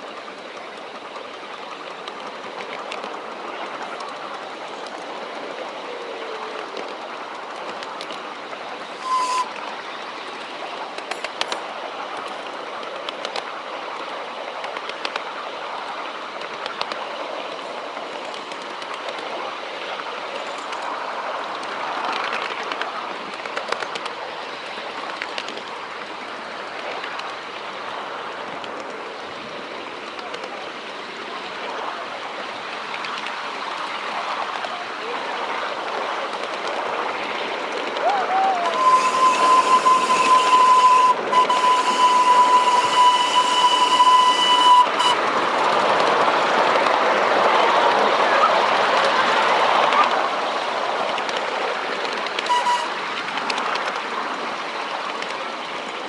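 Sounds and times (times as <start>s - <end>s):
rail joint clicks: 0.0s - 5.9s, 6.5s - 27.8s, 28.4s - 29.1s, 35.9s - 48.0s, 50.9s - 56.0s
wheels rumbling on rails: 0.0s - 56.0s
short high tone: 9.0s - 9.6s, 38.6s - 45.2s, 52.5s - 52.9s.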